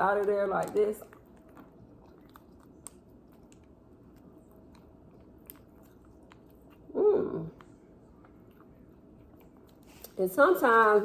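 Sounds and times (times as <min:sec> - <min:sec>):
person chewing: 0:00.2 - 0:10.2
short hum-like vocal sound: 0:06.8 - 0:07.8.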